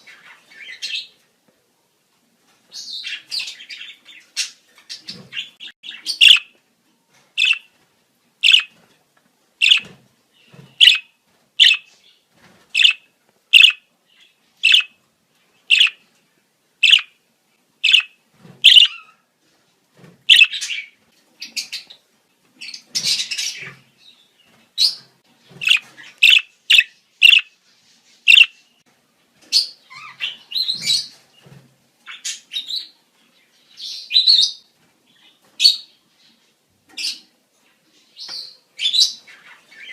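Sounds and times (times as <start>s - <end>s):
budgerigar chirping and warbling: 5.1s - 6.5s, 7.4s - 7.7s, 8.4s - 8.7s, 9.6s - 9.8s, 10.8s - 11.9s, 12.8s - 13.0s, 13.6s - 13.8s, 14.6s - 14.9s, 15.7s - 16.0s, 16.8s - 17.1s, 17.8s - 19.2s, 20.3s - 20.8s, 25.6s - 27.5s, 28.3s - 28.5s.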